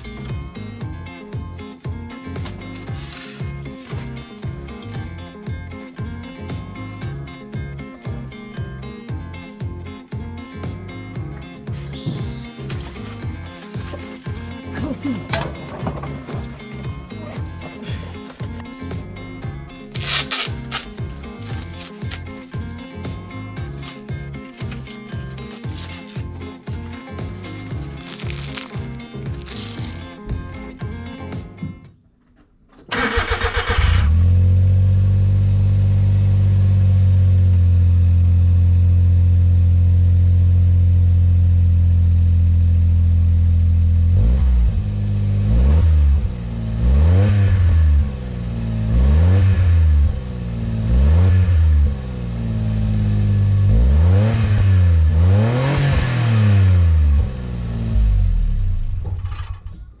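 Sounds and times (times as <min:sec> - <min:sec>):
truck engine starting and revving: 0:32.8 - 0:39.1, 0:43.3 - 0:59.7.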